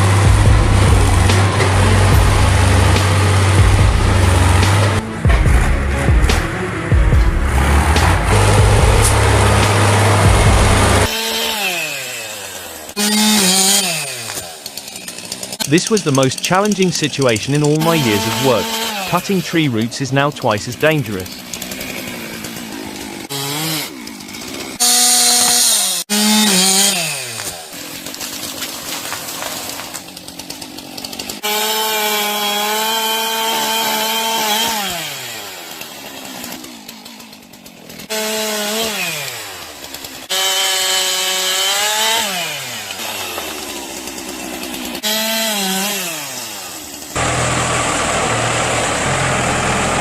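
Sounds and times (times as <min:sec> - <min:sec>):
deep engine running: 0:00.0 - 0:11.1, 0:47.2 - 0:50.0
chainsaw cutting wood: 0:00.0 - 0:50.0.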